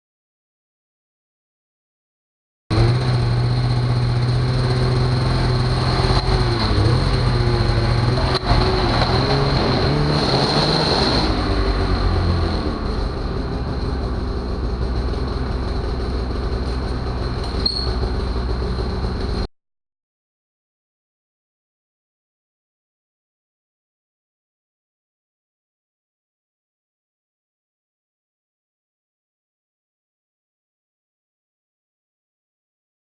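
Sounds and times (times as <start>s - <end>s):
snowmobile engine running: 2.7s - 19.5s
snowmobile track clatter: 2.7s - 19.5s.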